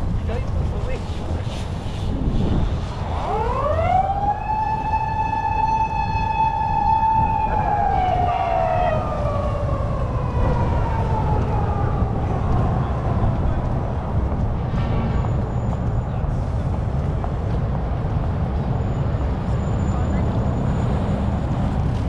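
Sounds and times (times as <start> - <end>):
city traffic rumble: 0.0 - 22.0
emergency vehicle siren: 2.8 - 14.2, 18.8 - 22.0.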